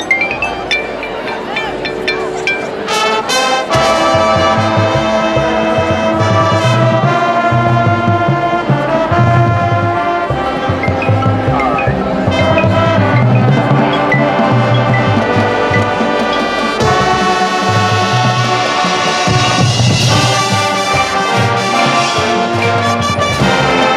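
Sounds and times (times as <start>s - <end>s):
marching band brass chords: 0.0s - 23.9s.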